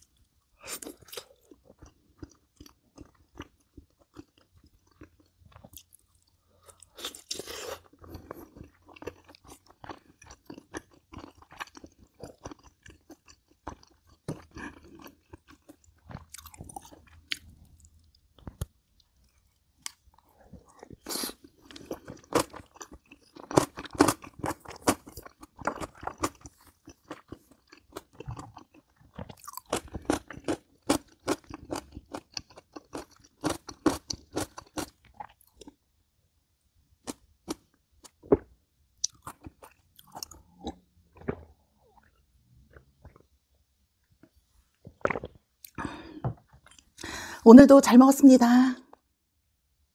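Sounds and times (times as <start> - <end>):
person chewing crunchy food: 0.0 - 35.8, 37.0 - 47.1.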